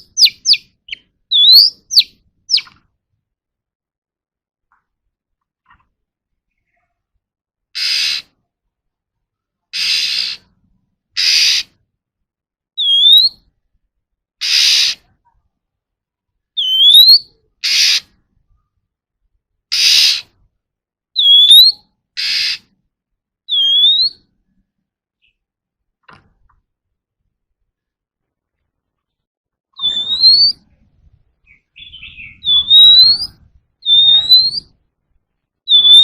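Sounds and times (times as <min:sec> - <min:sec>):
bird harsh rasping churrs: 0:00.0 - 0:02.7, 0:09.8 - 0:10.5, 0:11.2 - 0:11.7, 0:29.8 - 0:30.6, 0:31.8 - 0:34.6, 0:35.7 - 0:36.0
bird whistled notes: 0:00.0 - 0:02.7, 0:16.6 - 0:17.2, 0:23.5 - 0:24.2, 0:29.8 - 0:30.6, 0:31.5 - 0:34.8, 0:35.7 - 0:36.0.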